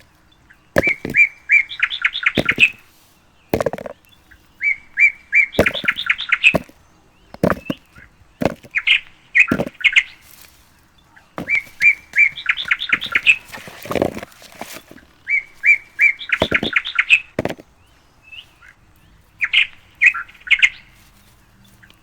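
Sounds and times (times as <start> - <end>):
songbird singing: 0.0 - 22.0
short knocks or rustles: 0.8 - 1.3, 2.4 - 2.8, 3.6 - 4.0, 5.6 - 8.8, 9.5 - 9.8, 11.4 - 15.2, 16.4 - 16.8, 17.4 - 17.7.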